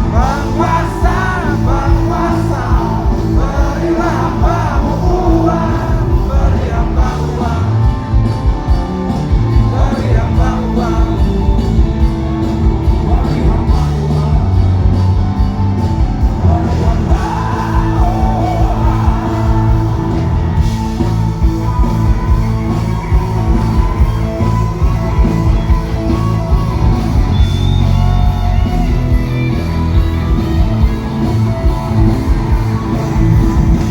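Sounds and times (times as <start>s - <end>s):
electric guitar: 0.0s - 33.9s
live rock band playing: 0.0s - 33.9s
person singing: 9.5s - 11.8s, 16.4s - 20.2s.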